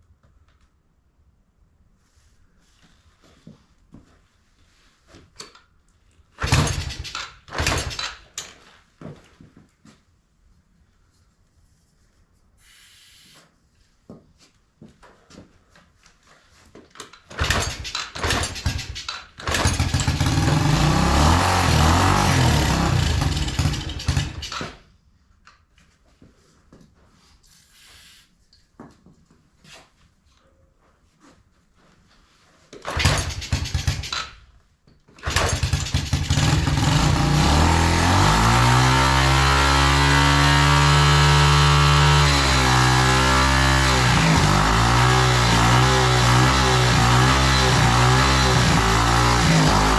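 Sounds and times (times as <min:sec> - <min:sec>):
small engine cranking and running: 0:06.4 - 0:08.4, 0:17.3 - 0:24.8, 0:32.8 - 0:34.4, 0:35.2 - 0:49.9.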